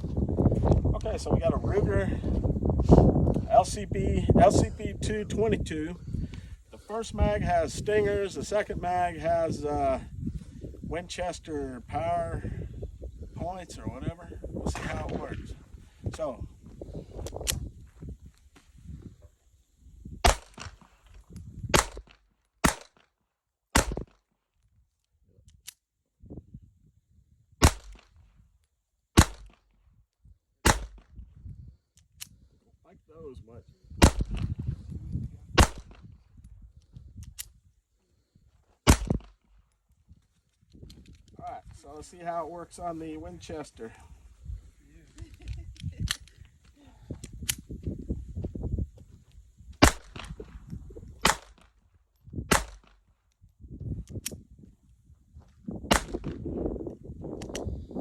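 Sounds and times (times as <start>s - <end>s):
pistol shots: 20.2s - 20.9s, 21.7s - 23.0s, 23.8s - 24.2s, 27.6s - 28.1s, 29.2s - 29.6s, 30.6s - 31.0s, 34.0s - 34.5s, 35.6s - 36.0s, 38.9s - 39.4s, 49.8s - 50.4s, 51.2s - 51.7s, 52.5s - 53.0s, 55.9s - 56.4s
small click: 57.4s - 57.7s.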